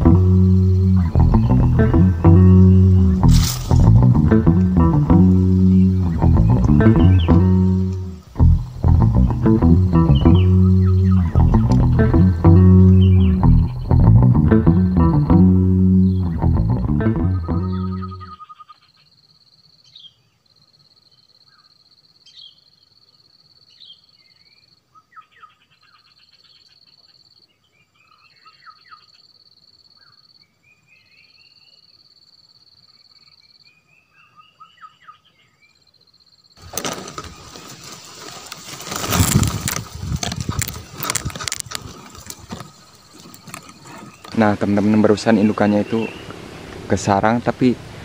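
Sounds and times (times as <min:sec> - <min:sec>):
small birds chirping: 0:00.0 - 0:47.4
rustling of leaves and grass: 0:00.1 - 0:13.9, 0:36.6 - 0:48.0.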